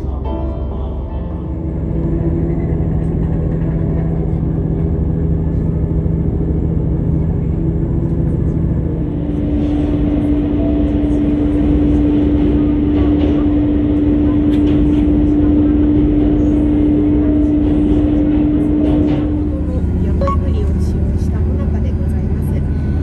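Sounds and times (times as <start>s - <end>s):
train engine rumbling: 0.0s - 23.0s.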